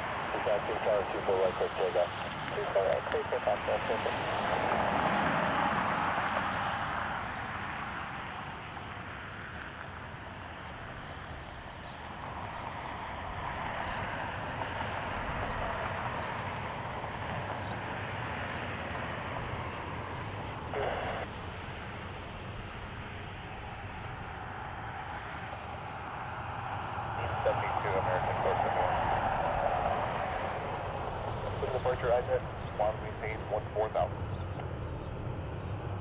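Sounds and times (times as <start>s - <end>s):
jet airliner engine rushing: 0.0s - 7.7s, 22.8s - 36.0s.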